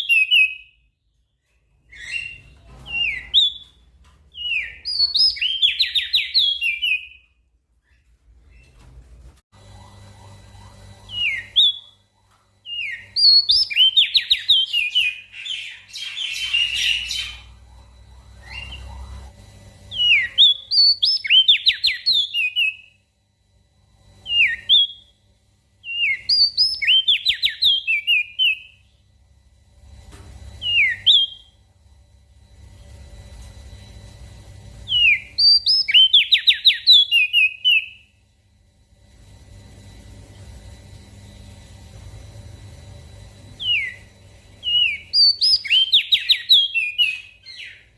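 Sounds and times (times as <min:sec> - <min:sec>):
bird singing whistled notes: 0:25.9 - 0:28.9, 0:34.9 - 0:38.1, 0:43.6 - 0:47.9.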